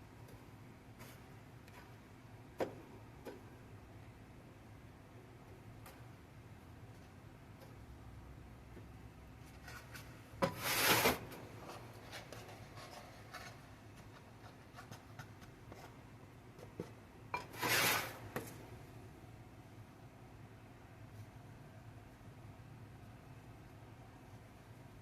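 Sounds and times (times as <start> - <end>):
rasping scrapes: 17.4 - 18.4.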